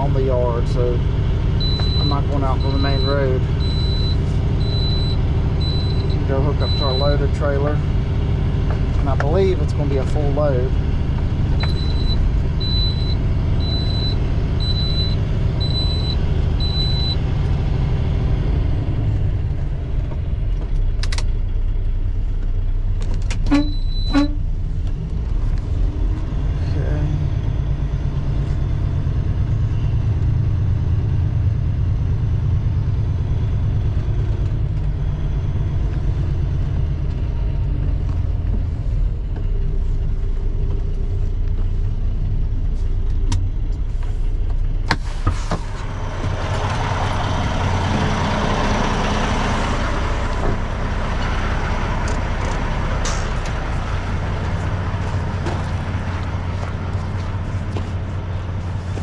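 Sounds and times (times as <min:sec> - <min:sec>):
diesel truck engine running: 0:00.0 - 0:59.0
sharp click: 0:53.0 - 0:53.6.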